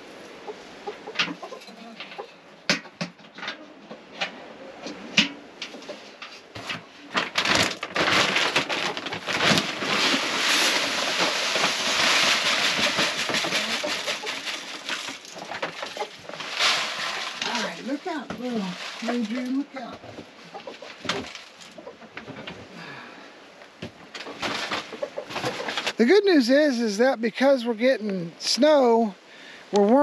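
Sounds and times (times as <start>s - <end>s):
chickens clucking: 0.0s - 4.2s, 10.0s - 22.8s, 24.0s - 26.1s
loud steady rustling: 5.8s - 22.9s, 23.9s - 27.0s.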